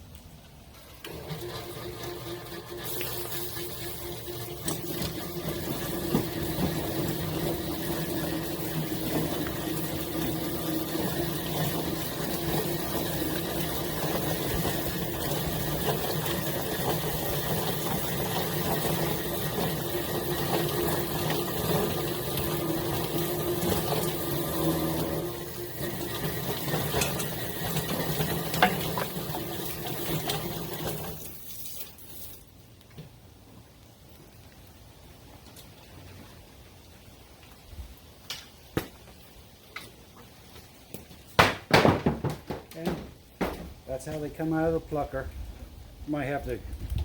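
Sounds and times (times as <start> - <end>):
chicken plucker motor hum: 0.9 - 31.4
water spraying hiss: 2.0 - 32.5.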